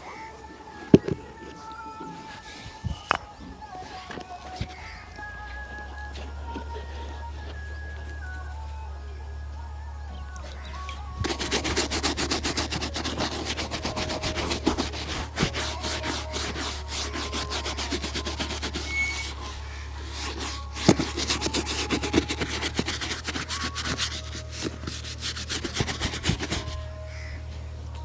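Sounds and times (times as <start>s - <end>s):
steady low hum: 0.0s - 28.0s
shoe being buffed by hand: 11.2s - 27.2s.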